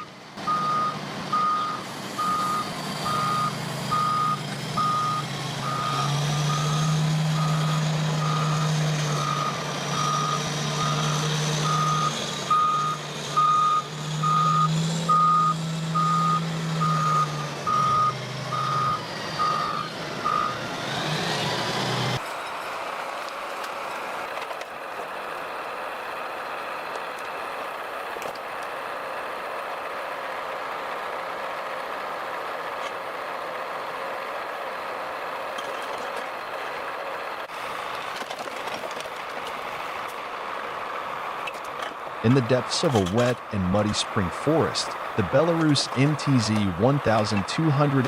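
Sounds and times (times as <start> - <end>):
reversing alarm beeping: 0.0 - 20.6
diesel engine revving: 0.0 - 35.6, 39.5 - 48.0.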